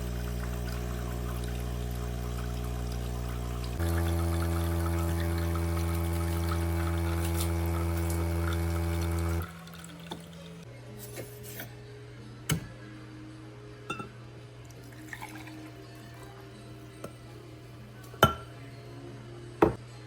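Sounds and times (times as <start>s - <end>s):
espresso machine pump buzzing: 0.0s - 10.4s.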